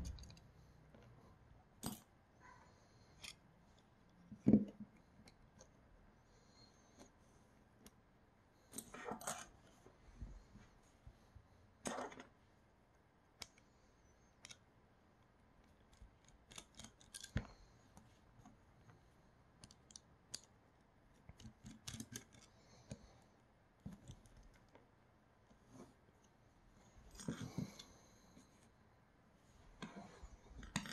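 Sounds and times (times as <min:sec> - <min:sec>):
small plastic parts clicking: 0:14.4 - 0:17.5, 0:21.2 - 0:23.0.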